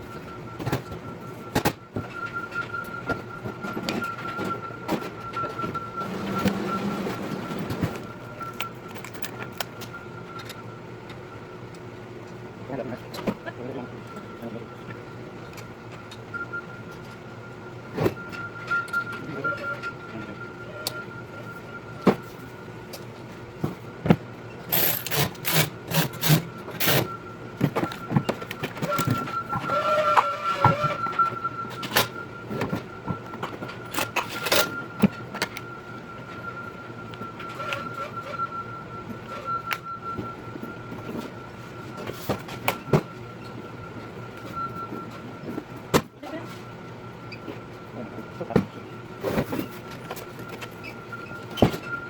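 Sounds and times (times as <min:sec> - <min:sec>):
thin steady whine: 0:00.0 - 0:52.0
knocks and clanks of parts: 0:00.5 - 0:10.6, 0:23.6 - 0:35.7
faint steady high tone: 0:16.3 - 0:22.6.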